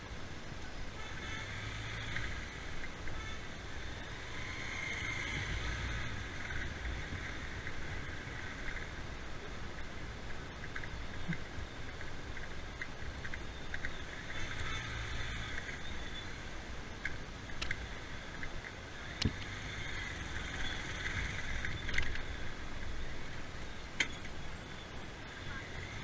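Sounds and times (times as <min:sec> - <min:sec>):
hum of traffic: 0:00.0 - 0:26.0
motorbike engine running low: 0:00.9 - 0:26.0.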